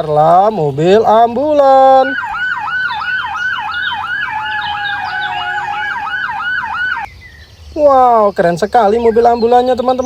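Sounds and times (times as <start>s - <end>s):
ambulance siren yelping: 1.4s - 7.1s.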